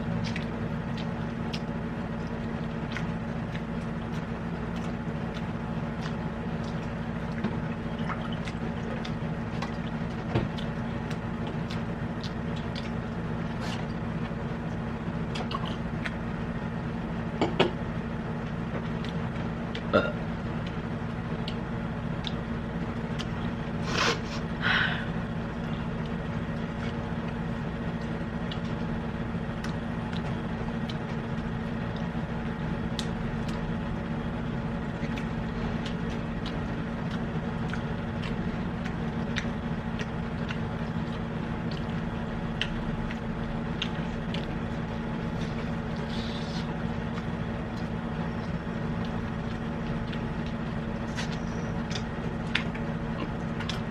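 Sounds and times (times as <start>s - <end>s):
faint chewing: 0.0s - 16.2s, 25.6s - 53.9s
machine hum: 0.0s - 53.9s.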